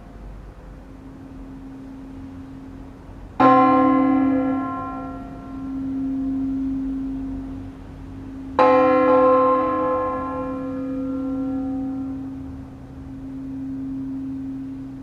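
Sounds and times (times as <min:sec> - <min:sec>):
church bell tolling: 0:00.0 - 0:15.0
hum of large bell: 0:00.0 - 0:15.0.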